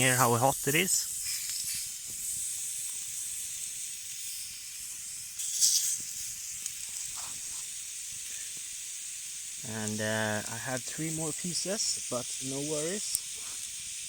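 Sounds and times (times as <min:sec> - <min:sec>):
pork sizzling on hot rock: 0:00.0 - 0:14.0.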